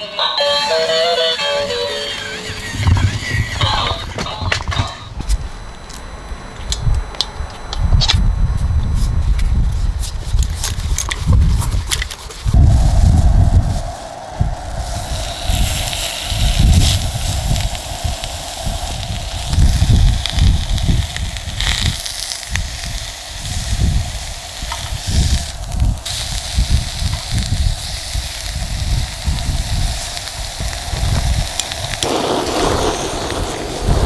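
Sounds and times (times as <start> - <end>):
gusty wind buffeting microphone: 2.5 - 34.0
steady hiss: 12.0 - 34.0.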